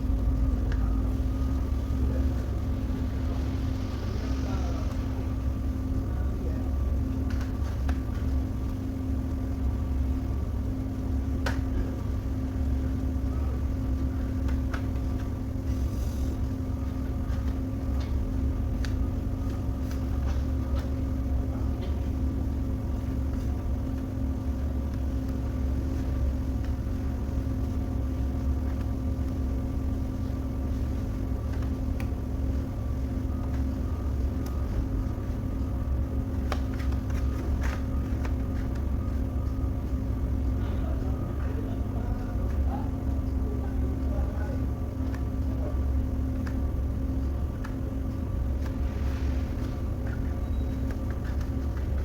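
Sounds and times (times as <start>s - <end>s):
machine hum and rumble: 0.0s - 52.0s
faint clicks and taps: 30.0s - 40.7s, 44.6s - 49.0s, 49.6s - 52.0s.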